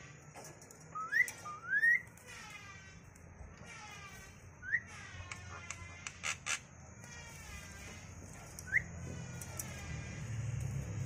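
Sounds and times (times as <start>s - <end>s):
bird whistling: 0.9s - 2.1s, 4.6s - 4.9s, 8.6s - 8.9s
bird chirp: 0.9s - 2.6s, 3.8s - 11.0s.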